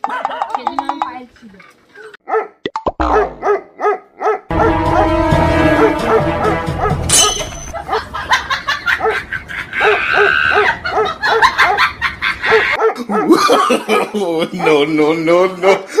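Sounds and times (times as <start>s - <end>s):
dog barking: 2.2s - 8.1s, 9.0s - 9.2s, 9.8s - 11.9s, 12.5s - 13.6s
music with held notes: 4.5s - 7.2s.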